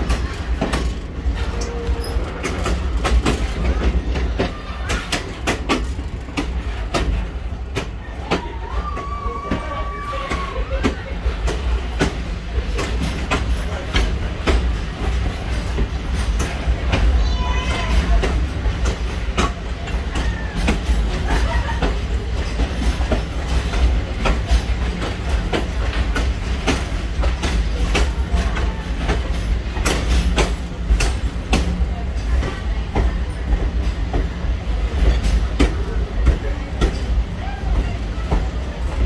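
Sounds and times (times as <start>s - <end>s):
railroad car rumbling on track: 0.0s - 39.0s
wheels clicking over rails: 0.0s - 39.0s.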